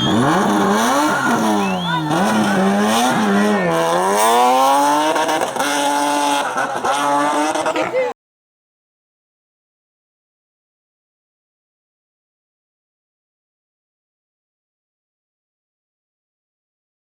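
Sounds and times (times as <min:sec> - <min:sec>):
race car engine revving hard: 0:00.0 - 0:08.1.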